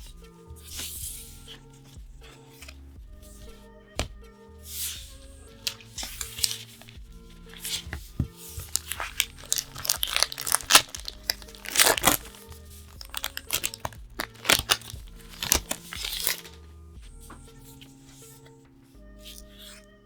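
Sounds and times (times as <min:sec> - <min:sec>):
soft background music: 0:00.0 - 0:20.0
packaging torn and crinkled: 0:08.6 - 0:16.6.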